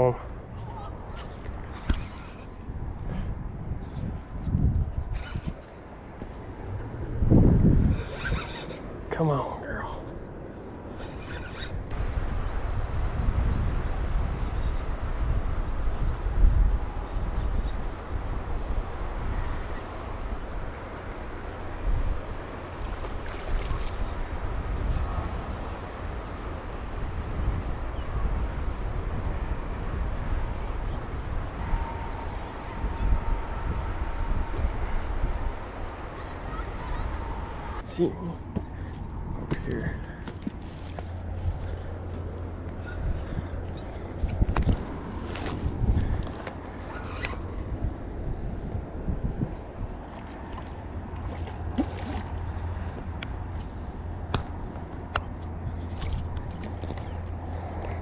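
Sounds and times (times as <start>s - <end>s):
wind buffeting microphone: 0.3s - 9.0s, 11.6s - 37.8s, 38.4s - 58.0s
faint thin steady tone: 11.9s - 37.8s
river water sloshing and gurgling: 11.9s - 37.8s, 49.6s - 58.0s
steady low rumble: 11.9s - 37.8s.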